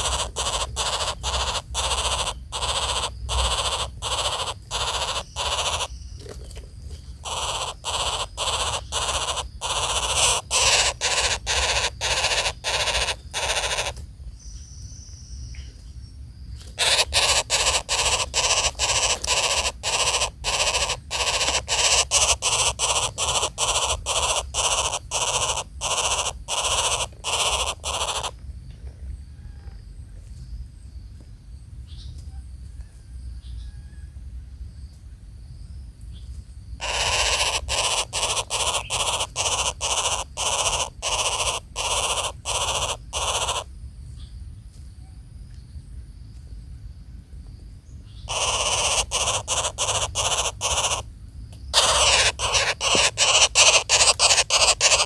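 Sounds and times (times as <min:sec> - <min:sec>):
nestlings rasping calls: 0:00.0 - 0:15.2, 0:16.6 - 0:28.4, 0:36.8 - 0:43.7, 0:48.1 - 0:55.0.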